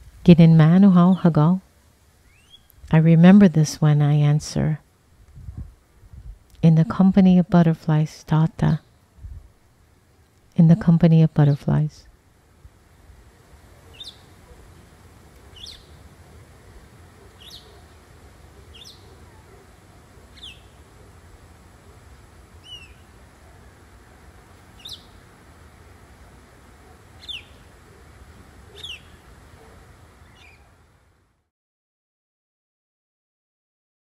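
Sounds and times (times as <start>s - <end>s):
bird high downward chirp: 13.9s - 14.4s, 15.5s - 16.0s, 17.4s - 17.9s, 18.6s - 19.5s, 20.3s - 20.8s, 22.6s - 23.2s, 24.8s - 25.2s, 27.2s - 27.7s, 28.7s - 29.2s, 30.2s - 30.8s.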